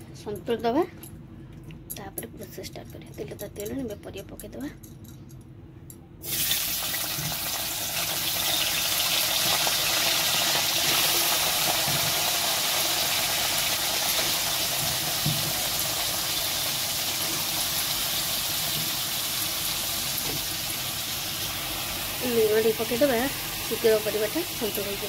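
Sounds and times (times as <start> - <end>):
vegetables sizzling in oil: 6.2 - 25.0.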